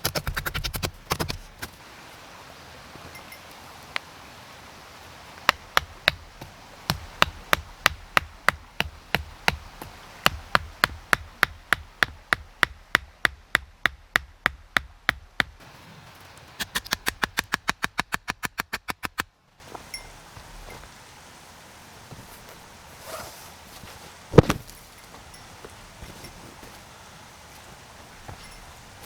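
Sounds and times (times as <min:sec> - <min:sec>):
sharp knocks on wood: 0:05.5 - 0:15.6, 0:24.3 - 0:24.8.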